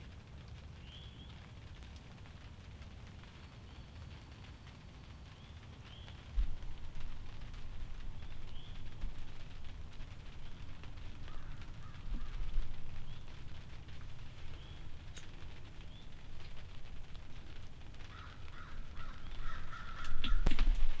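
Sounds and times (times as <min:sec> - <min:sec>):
bird chirping: 0:08.2 - 0:09.0, 0:14.4 - 0:15.2.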